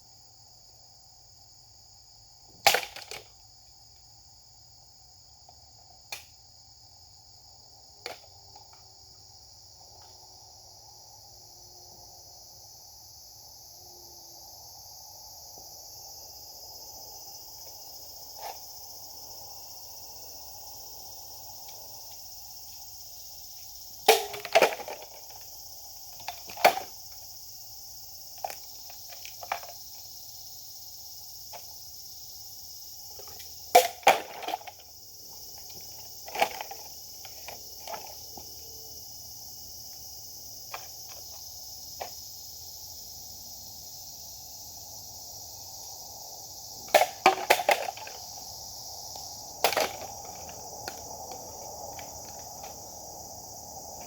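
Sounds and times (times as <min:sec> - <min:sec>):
insects chirring: 0:00.0 - 0:54.0
sharp knocks and cracks: 0:02.5 - 0:03.3, 0:08.0 - 0:08.8, 0:24.0 - 0:25.5, 0:26.1 - 0:27.2, 0:33.2 - 0:34.8, 0:35.6 - 0:38.2, 0:46.8 - 0:48.4, 0:49.1 - 0:52.8.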